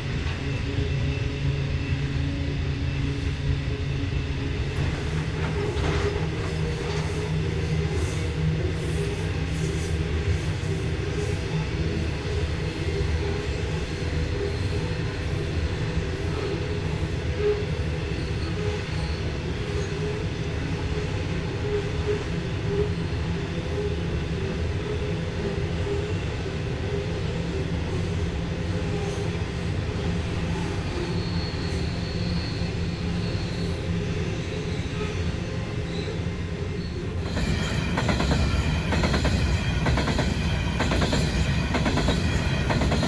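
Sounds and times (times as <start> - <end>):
train rumbling on rails: 0.0 - 43.0
high wheel squeal: 30.0 - 43.0.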